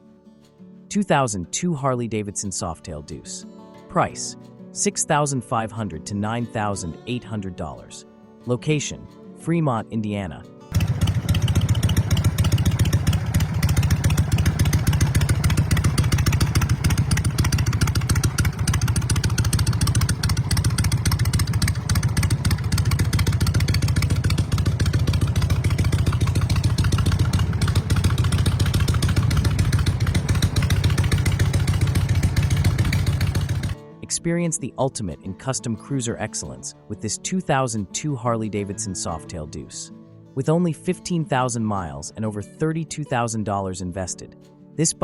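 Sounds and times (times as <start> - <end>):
motorcycle engine running: 10.7 - 33.8.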